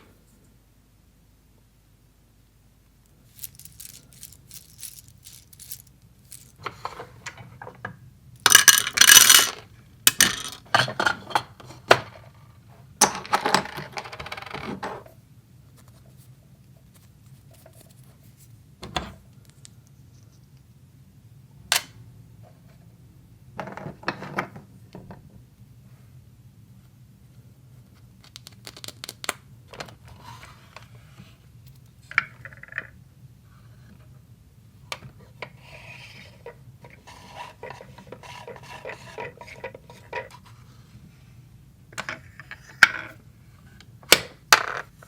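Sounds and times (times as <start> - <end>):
toy kitchen pieces clattering: 3.3 - 7.1, 8.4 - 11.4
scraping rattle: 3.4 - 6.6.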